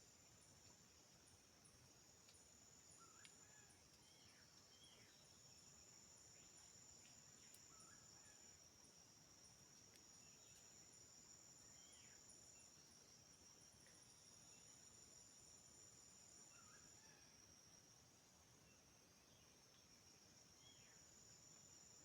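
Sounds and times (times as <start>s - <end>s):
pulsing insect chirp: 0.0s - 22.0s
high-pitched insect drone: 10.0s - 18.0s, 20.1s - 22.0s.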